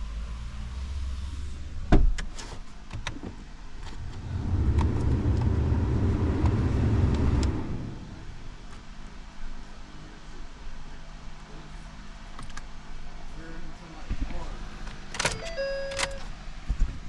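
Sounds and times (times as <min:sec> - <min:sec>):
steady low hum: 0:03.4 - 0:14.9.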